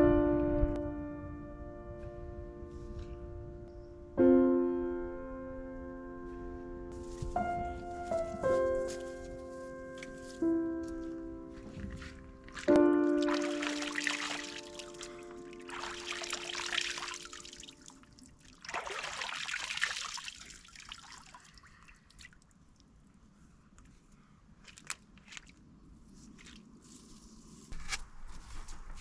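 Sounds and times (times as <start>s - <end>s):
background music: 4.4s - 17.4s
water trickling and splashing: 11.0s - 22.9s, 24.7s - 25.6s.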